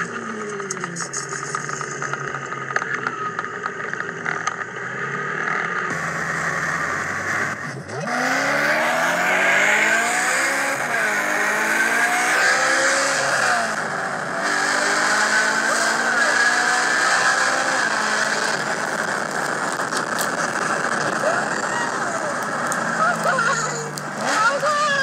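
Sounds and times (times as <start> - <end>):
car engine accelerating hard: 0.0 - 25.0
road and traffic noise: 0.0 - 25.0.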